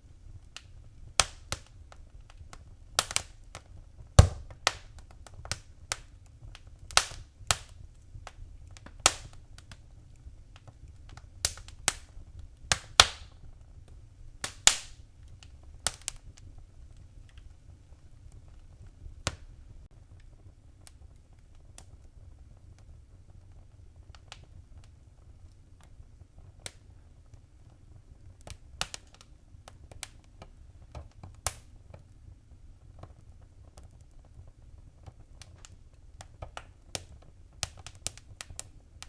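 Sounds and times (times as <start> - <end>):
faint low rumble: 0.0 - 39.0
fire crackling and popping: 0.0 - 39.0.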